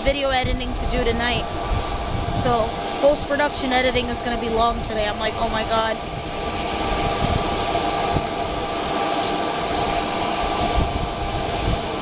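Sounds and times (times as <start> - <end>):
low rumbles on microphone: 0.0 - 8.8
jet turbine whine: 0.0 - 12.0.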